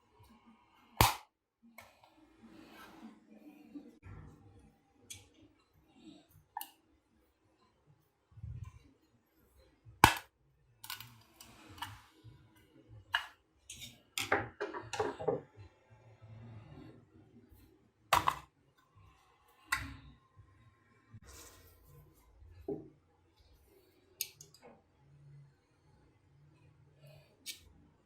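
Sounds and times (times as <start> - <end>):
hard objects clicking and knocking: 13.2 - 15.5.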